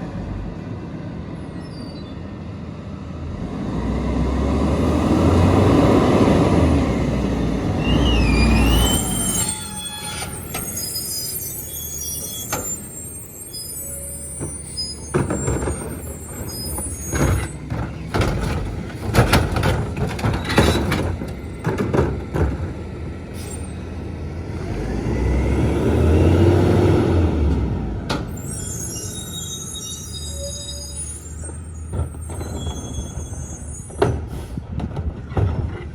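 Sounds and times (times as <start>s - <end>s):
brake squeals: 1.4s - 2.4s, 6.1s - 25.4s, 28.1s - 35.8s
diesel engine rumble: 2.2s - 35.9s.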